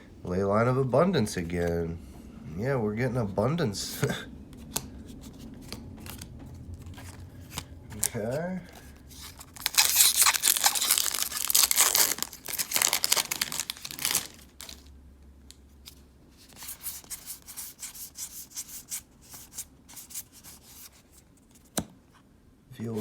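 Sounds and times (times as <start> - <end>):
cards rustling and ticking: 4.0 - 14.9, 15.8 - 21.9
foil wrapper tearing and crinkling: 4.7 - 14.9.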